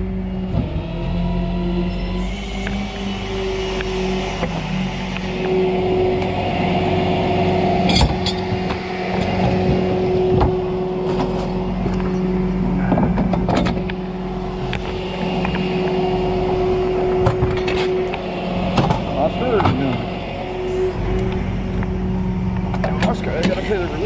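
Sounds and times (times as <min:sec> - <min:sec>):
tow truck engine humming: 0:00.0 - 0:24.0
sharp knocks and clunks: 0:12.9 - 0:14.0, 0:18.7 - 0:19.9.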